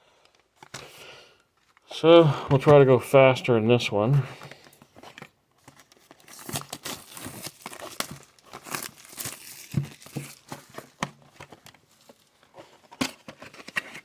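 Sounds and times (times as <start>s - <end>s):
plastic wrapping crinkling and tearing: 5.2s - 12.5s.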